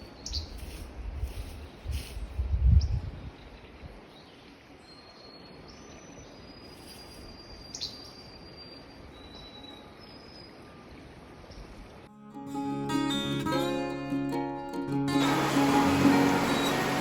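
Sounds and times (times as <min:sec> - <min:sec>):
songbirds whistling: 0:04.9 - 0:10.6.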